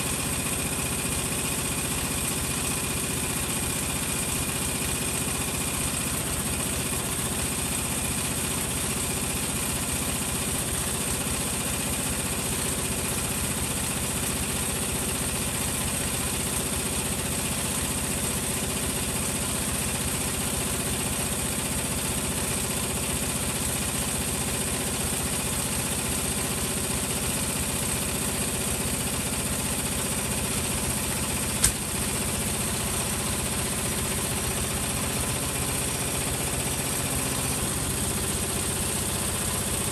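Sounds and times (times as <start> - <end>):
sharp click: 31.6 - 31.9.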